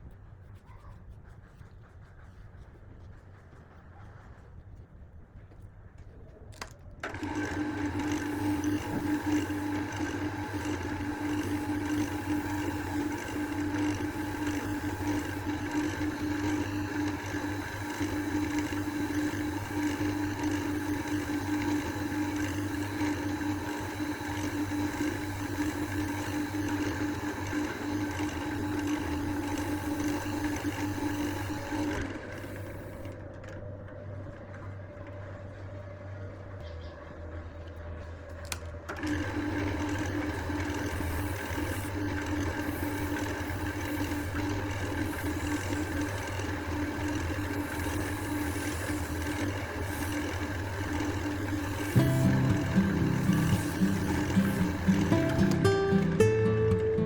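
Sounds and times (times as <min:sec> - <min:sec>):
wood lathe motor humming: 0:07.0 - 0:33.2, 0:39.0 - 0:57.0.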